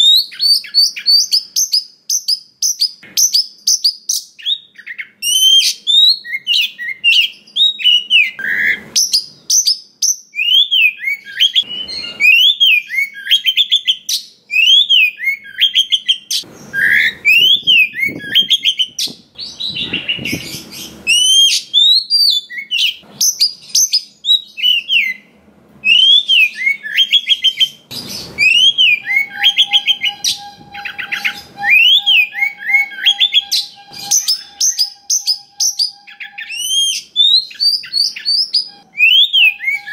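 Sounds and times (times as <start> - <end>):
bird singing whistled notes: 0.0 - 39.9
harsh rasping bird calls: 10.4 - 39.9.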